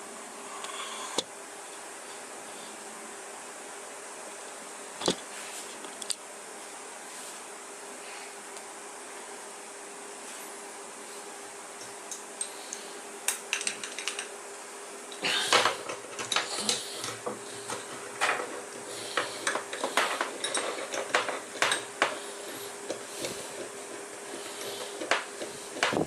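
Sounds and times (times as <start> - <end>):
faint steady hum: 0.0 - 26.0
metal tools clinking: 19.2 - 21.9.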